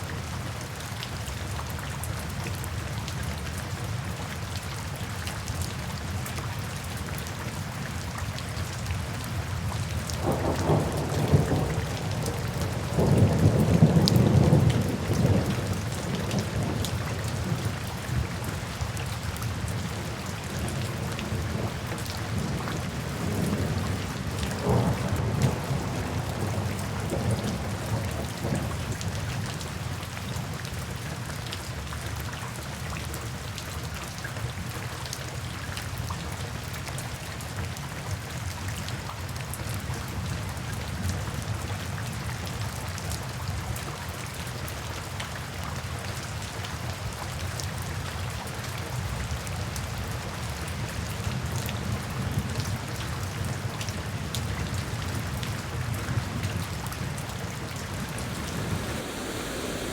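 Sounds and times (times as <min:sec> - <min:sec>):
steady rain falling: 0:00.0 - 0:59.9
thunder rumbling: 0:57.0 - 0:59.9.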